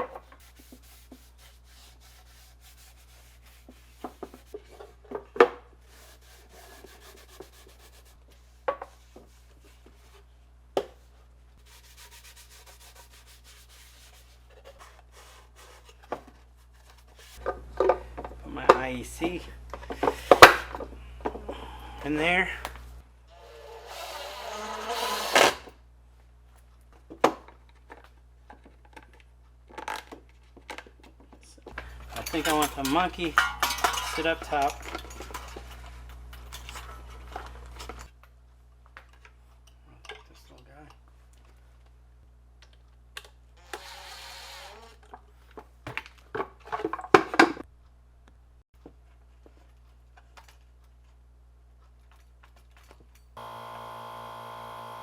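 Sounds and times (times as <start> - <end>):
brief whirr: 23.3 - 25.7, 53.4 - 55.0
clicks and knocks of small objects: 27.0 - 38.2.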